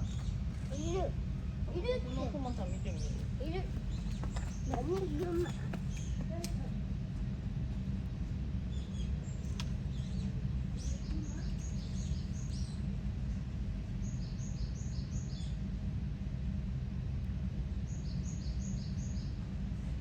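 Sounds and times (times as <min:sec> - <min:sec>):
small bird chirping: 0:00.0 - 0:01.1, 0:01.8 - 0:06.2, 0:08.7 - 0:12.9
low outdoor rumble: 0:00.0 - 0:20.0.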